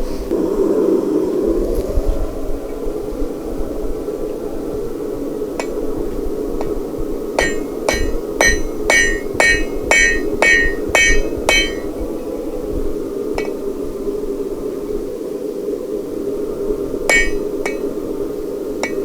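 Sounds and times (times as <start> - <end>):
hammer ringing on anvil: 7.4 - 11.9, 17.1 - 17.8
low hum: 7.4 - 12.2, 17.1 - 17.9.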